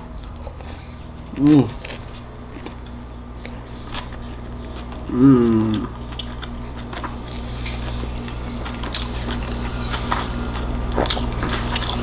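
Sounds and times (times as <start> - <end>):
steady low hum: 0.0 - 12.0
chewing and wet mouth smacks: 5.7 - 12.0.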